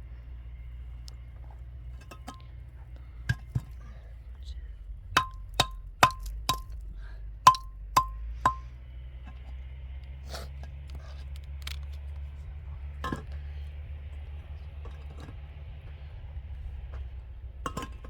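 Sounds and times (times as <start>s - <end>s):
metal striking metal: 5.1s - 6.8s, 7.4s - 8.7s.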